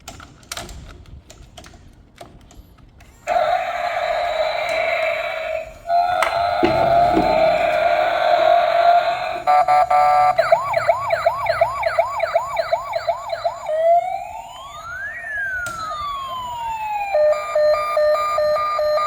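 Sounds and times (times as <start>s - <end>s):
electronic toy siren: 9.5s - 19.0s.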